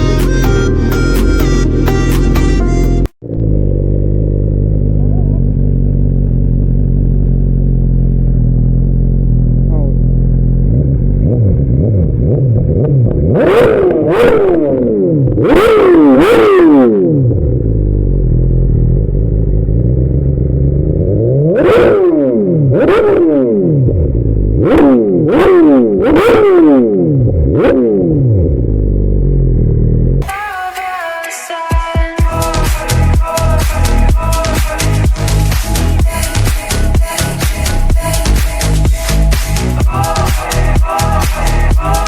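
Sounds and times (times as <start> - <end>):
motorcycle engine idling and revving: 0.0 - 30.2, 32.2 - 42.0.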